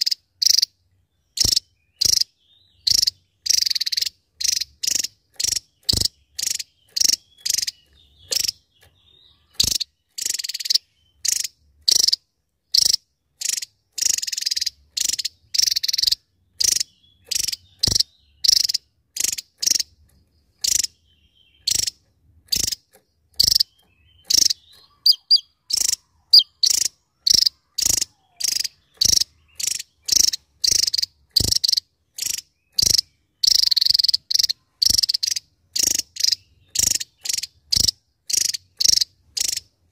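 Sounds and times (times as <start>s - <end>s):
bird buzzy calls: 0.0s - 39.9s.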